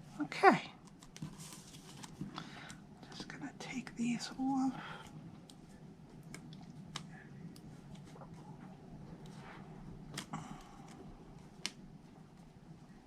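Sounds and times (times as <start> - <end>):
paper rustling: 0.8 - 3.3.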